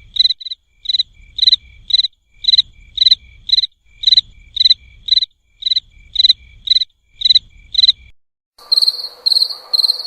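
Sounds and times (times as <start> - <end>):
cricket chirping: 0.0 - 10.0.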